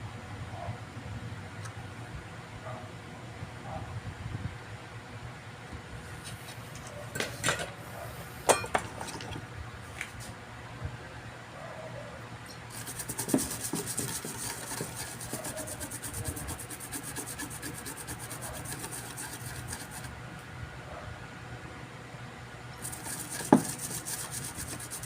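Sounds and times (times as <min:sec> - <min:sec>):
scraping on circuit board: 0:12.7 - 0:20.1, 0:22.8 - 0:25.0.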